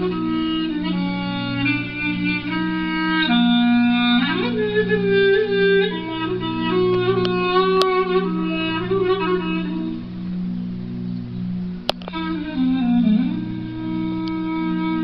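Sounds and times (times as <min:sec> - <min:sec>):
clarinet melody: 0:00.0 - 0:15.0
low held accompaniment: 0:00.0 - 0:15.0.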